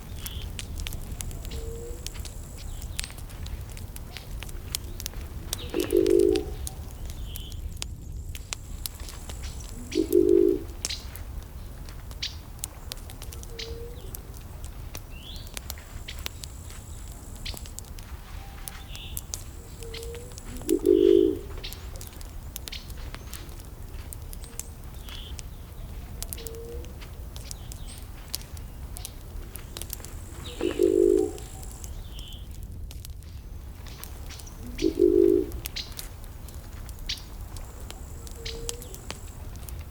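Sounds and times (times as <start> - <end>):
birds chirping: 0.0 - 7.7, 9.1 - 32.6, 33.2 - 36.1, 36.9 - 39.4
wood fire crackling and popping: 0.0 - 39.9
low bird call: 1.3 - 2.1, 5.5 - 7.6, 9.4 - 11.1, 13.4 - 14.2, 18.3 - 22.1, 29.8 - 32.5, 33.9 - 36.0, 37.9 - 39.3.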